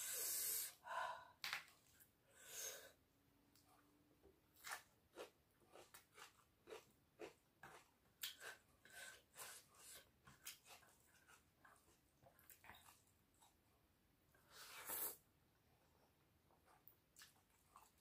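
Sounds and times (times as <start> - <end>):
wet chewing and lip-smacking: 4.6 - 13.6.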